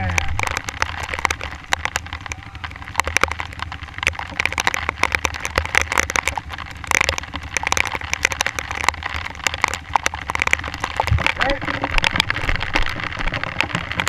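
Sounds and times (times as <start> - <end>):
low steady rumble: 0.0 - 14.0
raindrops ticking on camera: 0.0 - 14.0.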